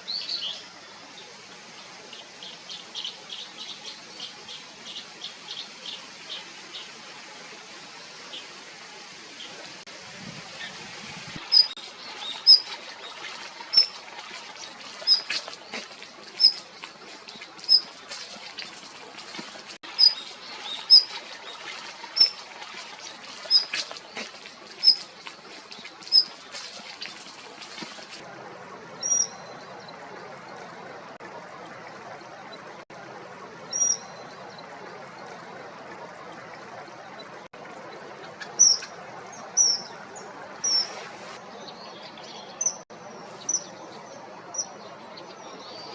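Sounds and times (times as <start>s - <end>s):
kingfisher piping calls: 11.4s - 25.2s, 26.0s - 27.2s, 38.4s - 38.9s, 40.6s - 41.1s.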